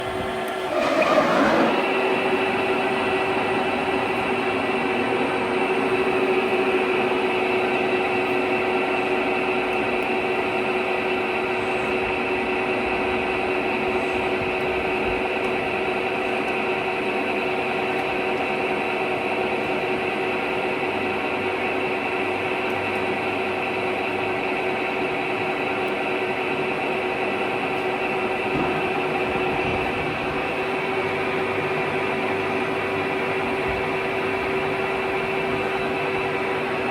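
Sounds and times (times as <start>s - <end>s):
boring lathe humming: 0.0s - 7.2s.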